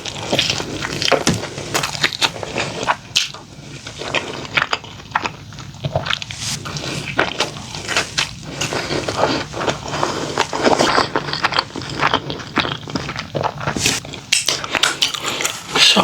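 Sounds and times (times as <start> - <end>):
chewing with crisp crunches: 0.0 - 16.0.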